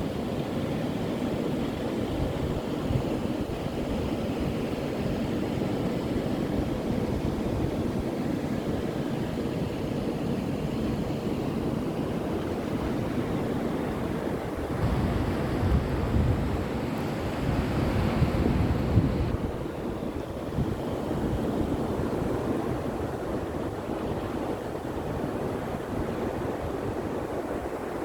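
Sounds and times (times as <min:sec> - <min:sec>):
surf washing onto beach: 0:12.2 - 0:28.0
wind buffeting microphone: 0:14.4 - 0:28.0.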